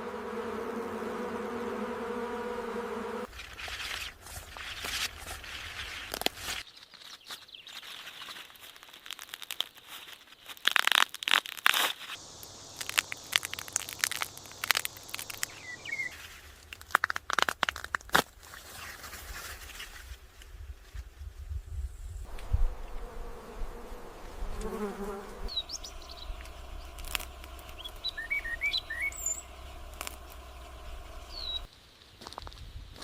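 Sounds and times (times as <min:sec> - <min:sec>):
crinkling rustling handling noise: 0:03.3 - 0:12.1
sharp snaps and clicks: 0:12.7 - 0:15.7, 0:26.4 - 0:28.0, 0:29.9 - 0:30.4.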